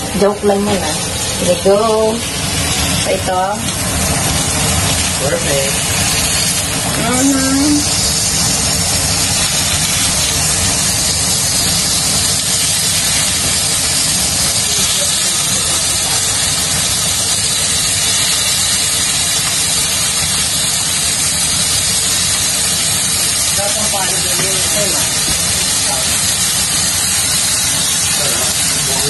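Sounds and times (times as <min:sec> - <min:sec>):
steaks sizzling in a pan: 0:00.0 - 0:29.0.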